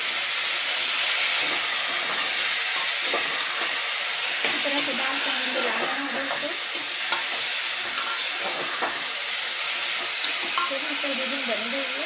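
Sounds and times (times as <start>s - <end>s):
food sizzling in oil: 0.0s - 12.0s
metal spoon scraping pot: 5.3s - 9.2s.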